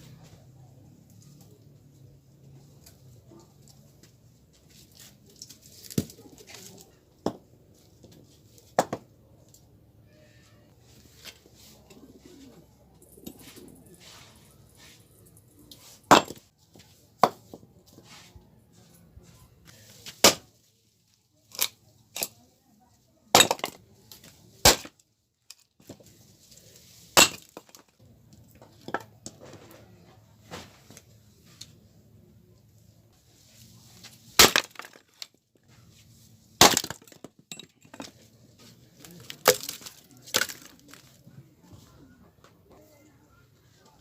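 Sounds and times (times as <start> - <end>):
wood knocking and cracking: 34.4 - 35.3, 36.6 - 38.2, 39.2 - 41.0.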